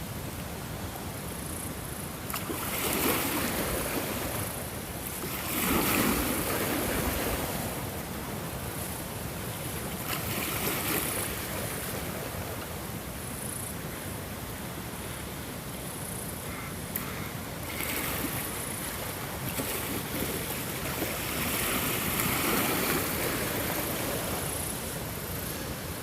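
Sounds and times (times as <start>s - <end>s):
ocean waves breaking: 2.3s - 12.5s, 16.9s - 26.0s.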